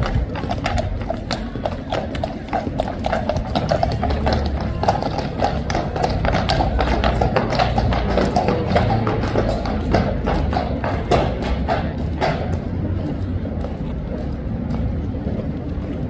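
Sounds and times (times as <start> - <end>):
horse hooves clip-clopping: 0.0 - 16.0.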